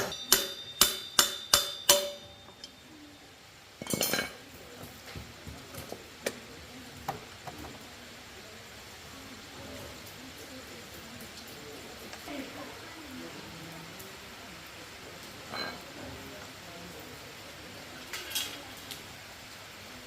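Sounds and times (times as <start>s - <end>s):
ringing metal-on-metal strikes: 0.0s - 3.2s.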